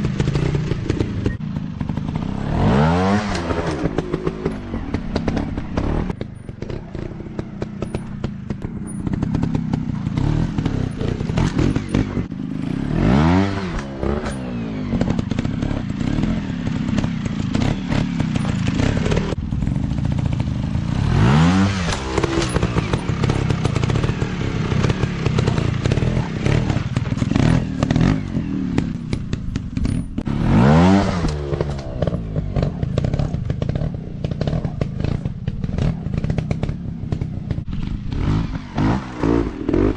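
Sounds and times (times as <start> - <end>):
sharp engine revs: 0.0 - 8.0, 8.9 - 19.4, 20.2 - 29.0, 29.8 - 39.9
dirt bike engines running: 0.0 - 39.9.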